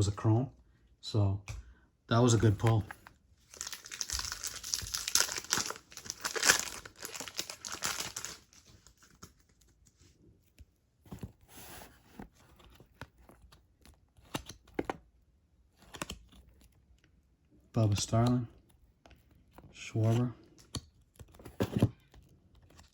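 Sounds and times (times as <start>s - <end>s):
cards being handled: 2.3s - 15.0s, 15.8s - 16.7s
card pack wrapper tearing: 3.5s - 9.3s.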